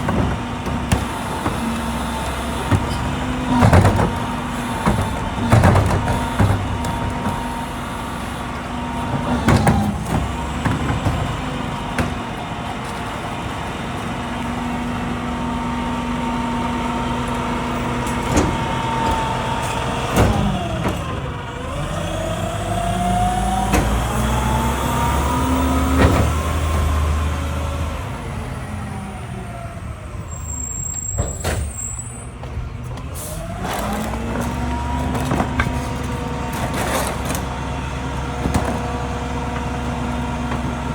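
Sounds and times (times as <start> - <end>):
knocks and clanks: 0.0 - 7.6, 9.0 - 13.2, 31.0 - 37.6, 38.2 - 40.9
diesel truck engine revving: 0.0 - 40.9.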